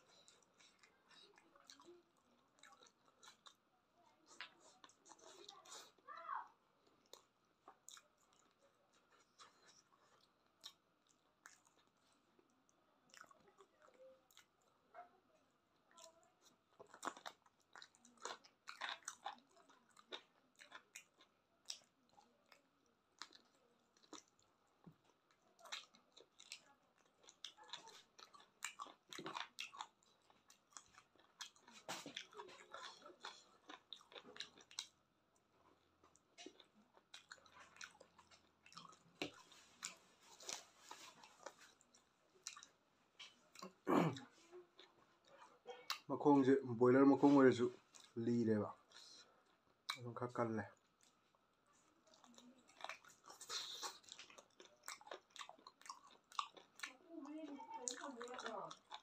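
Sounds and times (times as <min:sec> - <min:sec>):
person chewing and biting food: 0:06.9 - 0:12.3, 0:16.0 - 0:44.2, 0:51.8 - 0:56.9, 0:58.0 - 0:59.0.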